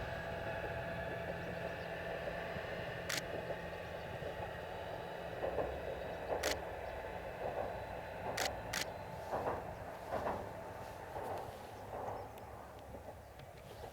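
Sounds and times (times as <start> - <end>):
diesel railcar humming: 0.0 - 13.9
camera shutter clicks: 3.1 - 3.3.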